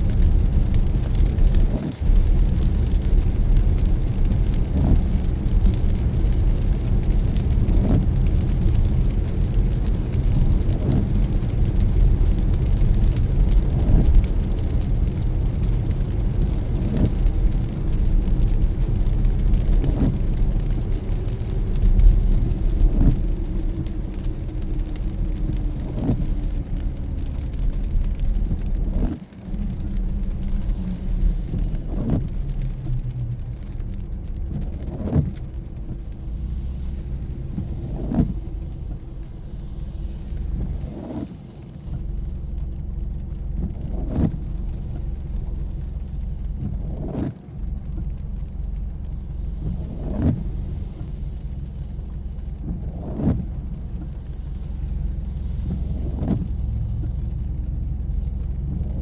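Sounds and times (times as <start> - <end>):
windshield wiper sweeping: 0.0 - 39.2, 43.6 - 48.5, 49.1 - 51.9, 52.5 - 57.7
road and engine rumble: 0.0 - 59.0.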